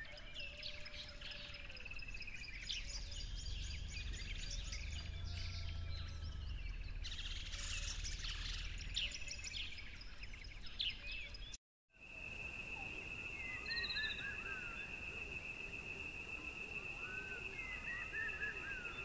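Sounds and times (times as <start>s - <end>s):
birds chirping: 0.0s - 19.0s
steady high-pitched whine: 12.0s - 19.0s.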